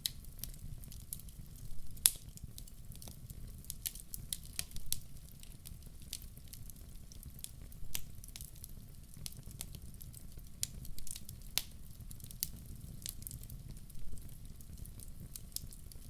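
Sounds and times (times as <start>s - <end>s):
sharp pops of fire: 0.0s - 6.6s, 7.2s - 9.8s
wood fire crackling: 0.0s - 16.0s.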